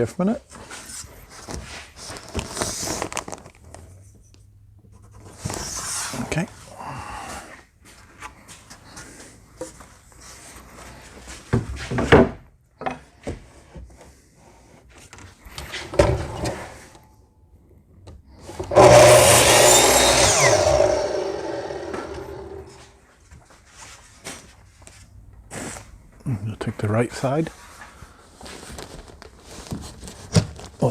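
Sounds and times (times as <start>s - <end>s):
power saw cutting wood: 18.6s - 22.9s.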